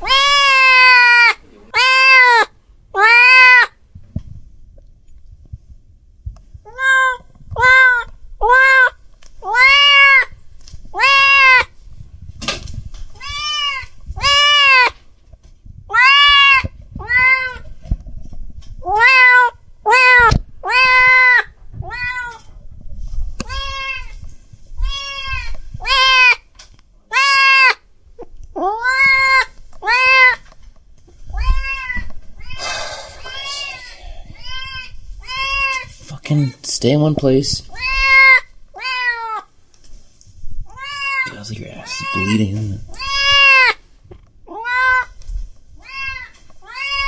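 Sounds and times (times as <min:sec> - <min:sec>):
cat meowing: 0:00.0 - 0:03.8, 0:06.7 - 0:11.7, 0:13.1 - 0:15.0, 0:15.9 - 0:17.7, 0:18.8 - 0:22.5, 0:23.4 - 0:24.2, 0:24.8 - 0:26.4, 0:27.1 - 0:27.8, 0:28.6 - 0:30.5, 0:31.3 - 0:36.6, 0:37.7 - 0:39.5, 0:40.7 - 0:43.8, 0:44.5 - 0:45.2, 0:45.8 - 0:47.0.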